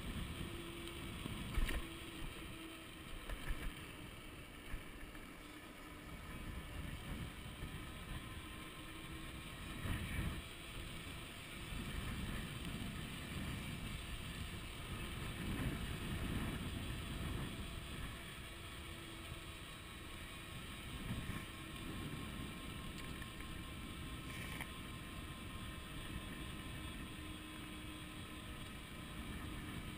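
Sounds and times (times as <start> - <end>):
faint steady tones: 0.0 - 29.9
wind buffeting microphone: 6.3 - 10.6, 11.5 - 18.5.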